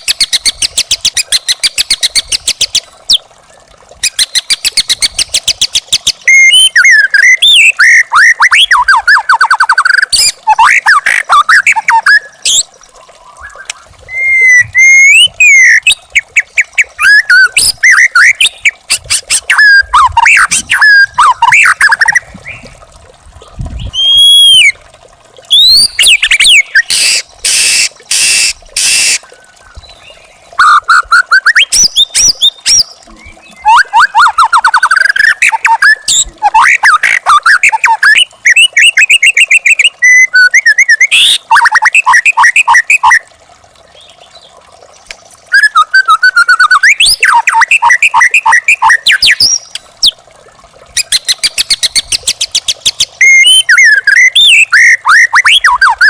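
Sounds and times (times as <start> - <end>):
bird singing whistled phrases: 6.3 - 12.7, 13.4 - 16.0, 16.6 - 22.6, 23.8 - 24.8, 25.5 - 29.2, 30.6 - 43.2, 45.5 - 50.2, 51.0 - 56.0
harsh scratchy bird bursts: 26.9 - 29.2.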